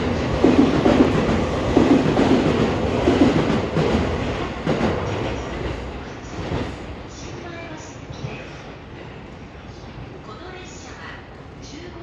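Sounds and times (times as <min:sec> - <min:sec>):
train rolling rumble: 0:00.0 - 0:12.0
train wheels clacking over rail joints: 0:00.4 - 0:05.7.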